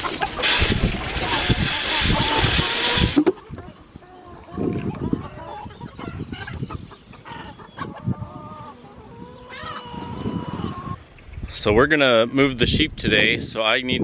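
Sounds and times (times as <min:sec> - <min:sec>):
hens clucking: 0:00.0 - 0:11.2.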